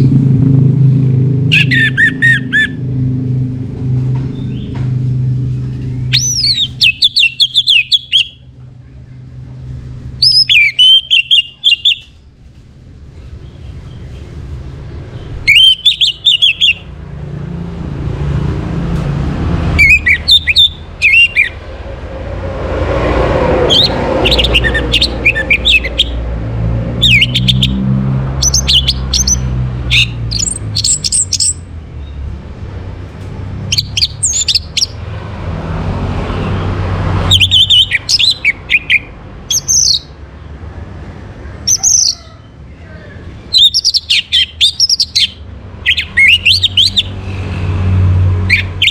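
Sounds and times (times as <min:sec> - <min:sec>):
thrush singing: 0:01.3 - 0:02.9, 0:05.9 - 0:08.5, 0:10.2 - 0:12.1, 0:15.2 - 0:17.6, 0:19.4 - 0:31.7, 0:43.5 - 0:48.9.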